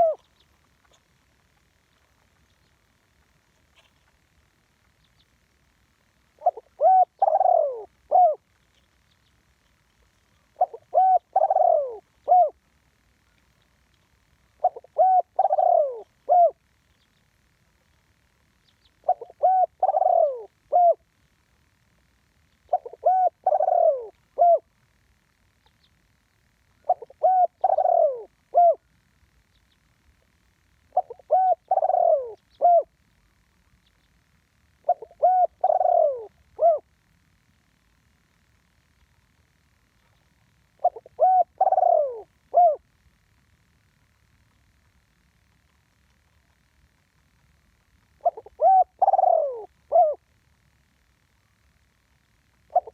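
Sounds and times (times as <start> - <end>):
dove cooing: 0.0 - 1.7, 6.3 - 8.5, 10.4 - 12.7, 14.5 - 16.8, 18.9 - 21.2, 22.7 - 24.8, 26.8 - 28.9, 30.9 - 33.0, 34.8 - 37.0, 40.1 - 42.9, 48.2 - 50.3, 52.6 - 52.9.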